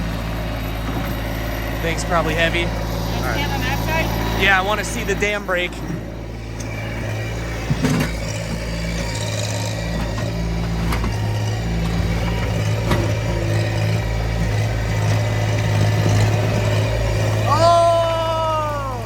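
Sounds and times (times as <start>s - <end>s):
tractor engine under load: 0.0s - 19.0s
digging knocks: 2.7s - 17.4s.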